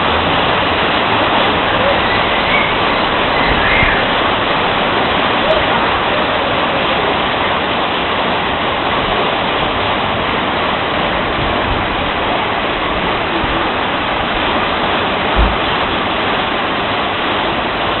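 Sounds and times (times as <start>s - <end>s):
heavy rain pouring: 0.0s - 18.0s
short low thump: 15.3s - 15.7s.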